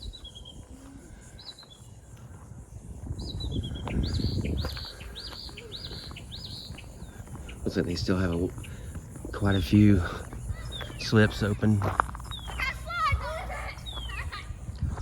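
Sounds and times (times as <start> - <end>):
songbird whistled chirps: 3.2 - 6.9.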